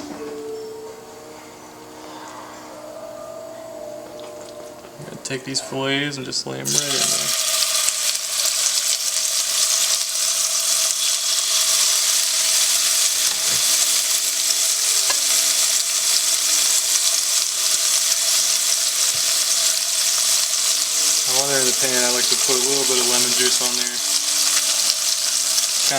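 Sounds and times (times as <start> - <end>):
fish sizzling in oil: 6.7 - 25.9.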